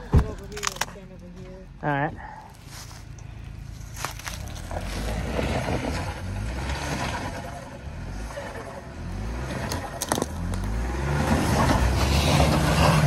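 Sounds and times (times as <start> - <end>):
sharp clicks from rocks: 0.2 - 1.0, 9.7 - 10.7
engine running under load: 1.6 - 13.0.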